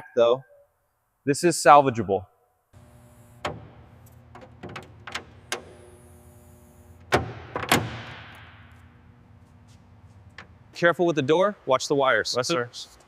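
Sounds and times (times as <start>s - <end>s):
car door clunks: 7.0s - 8.3s
car door clicks and knocks: 7.1s - 8.3s.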